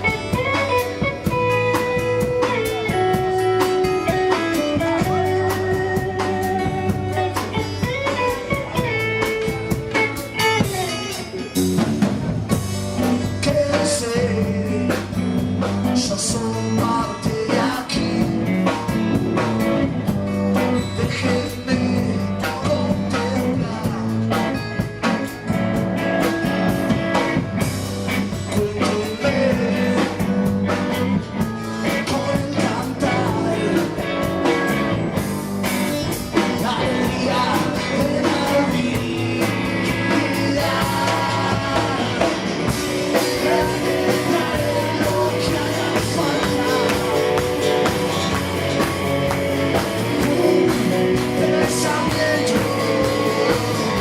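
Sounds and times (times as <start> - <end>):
drums: 0.0 - 54.0
guitar: 0.0 - 54.0
person singing: 13.0 - 19.0, 20.4 - 25.5, 28.4 - 30.8, 31.4 - 35.2, 36.4 - 54.0.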